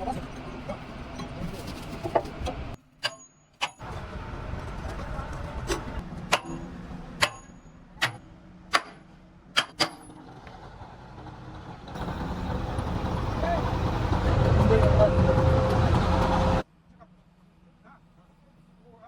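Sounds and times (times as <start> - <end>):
low engine rumble: 10.1 - 16.6.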